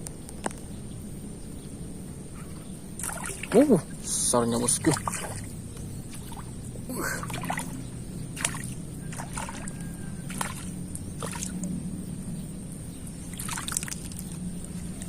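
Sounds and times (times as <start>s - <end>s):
low hum: 0.0s - 15.0s
water sloshing and splashing: 3.0s - 11.8s, 13.0s - 15.0s.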